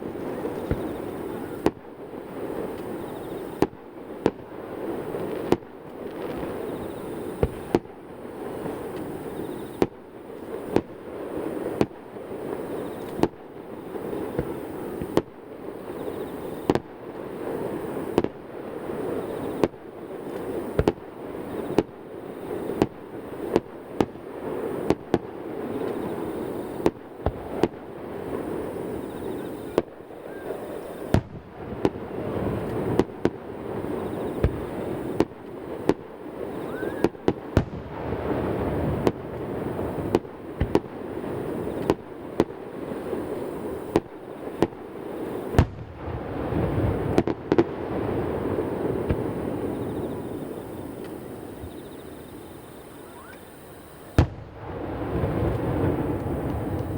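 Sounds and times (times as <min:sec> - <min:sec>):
fireworks bursting: 0:00.0 - 0:56.9
booms echoing off mountains: 0:30.8 - 0:35.3.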